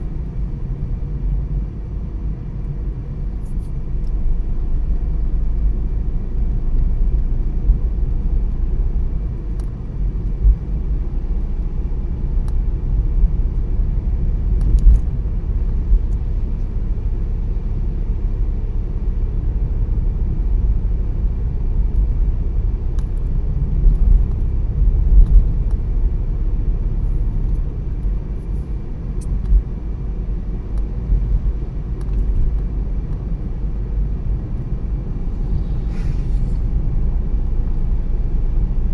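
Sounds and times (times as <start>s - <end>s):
road and tyre rumble: 0.0s - 38.9s.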